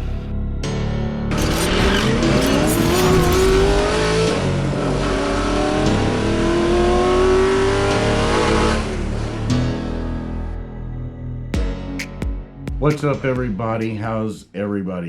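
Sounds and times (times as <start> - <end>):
car engine accelerating hard: 1.3 - 10.2.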